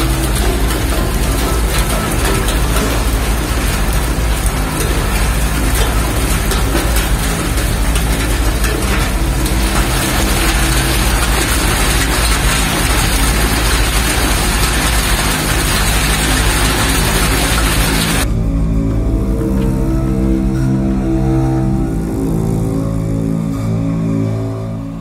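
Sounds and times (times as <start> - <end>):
heavy rain downpour: 0.0 - 18.3
dark background music: 0.0 - 25.0.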